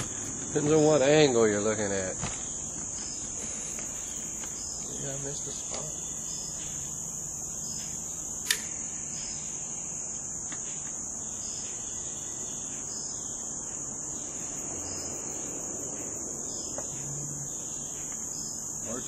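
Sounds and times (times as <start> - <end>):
crickets chirping: 0.0 - 19.0
sharp click: 8.4 - 8.8.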